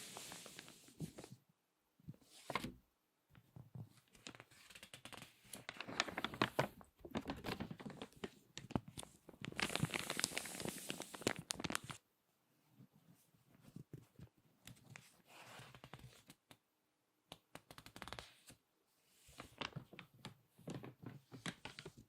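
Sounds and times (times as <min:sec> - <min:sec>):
magazine pages crinkling: 0:04.2 - 0:12.0.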